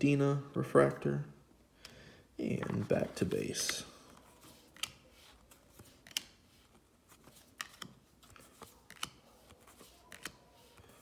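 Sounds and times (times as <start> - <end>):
trading cards flipped by hand: 2.6 - 11.0.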